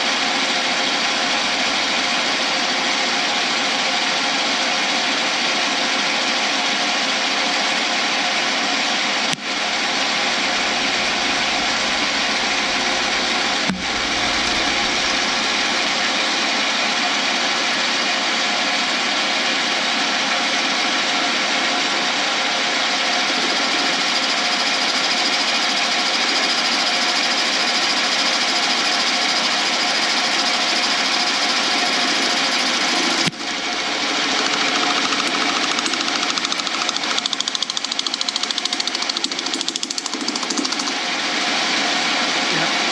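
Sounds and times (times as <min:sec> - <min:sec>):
lathe cutting resin: 0:00.1 - 0:03.8, 0:09.5 - 0:16.7, 0:30.6 - 0:41.0.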